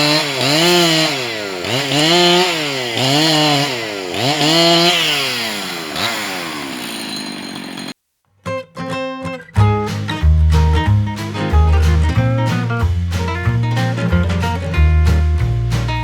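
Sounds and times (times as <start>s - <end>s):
chainsaw cutting into tree: 0.0s - 8.0s.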